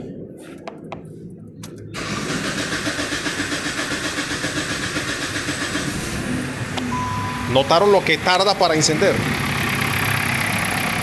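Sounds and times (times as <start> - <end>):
starter cranking engine: 2.0 - 6.5
car engine running: 2.0 - 11.0.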